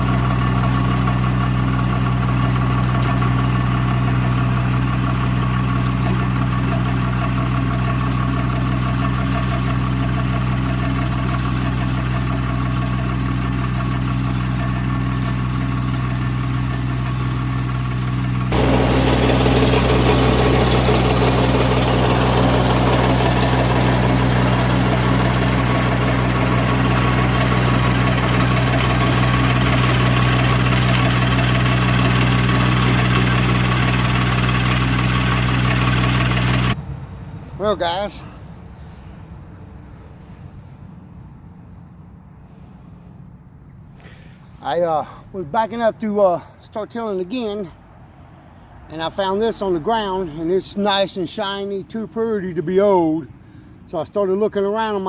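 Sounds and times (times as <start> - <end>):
tractor diesel engine running: 0.0 - 40.8, 48.6 - 55.0.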